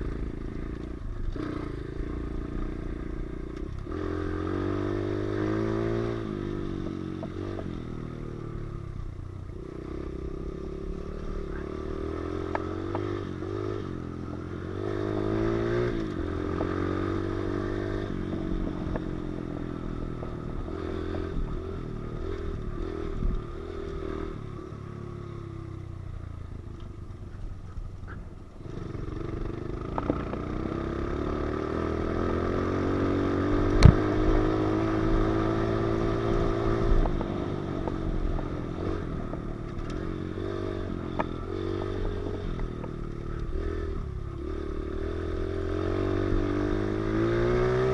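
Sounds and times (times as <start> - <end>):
pit bike engine revving: 0.0 - 25.7, 28.6 - 47.9.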